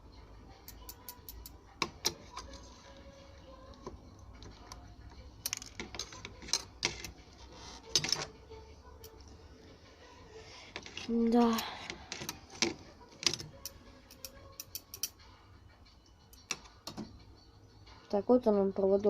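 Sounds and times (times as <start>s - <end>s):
tools tapping circuit board: 0.7s - 2.2s, 10.8s - 15.2s, 16.3s - 17.2s.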